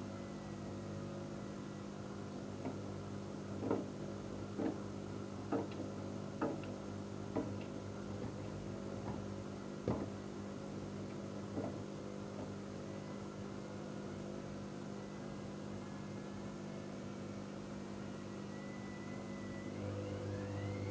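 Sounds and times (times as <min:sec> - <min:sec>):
washing machine motor hum: 0:00.0 - 0:20.9
soft thumps in washing machine: 0:03.6 - 0:04.9, 0:05.5 - 0:10.4, 0:11.0 - 0:12.8.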